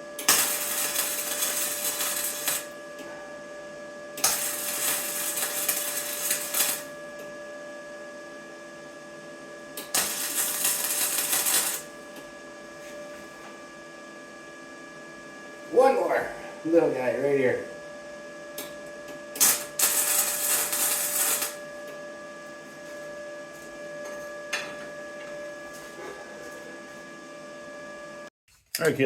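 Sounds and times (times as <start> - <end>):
arc welder crackling: 0.0 - 2.8, 4.2 - 7.0, 9.8 - 12.0, 19.3 - 21.6
steady electrical hum: 0.0 - 27.4.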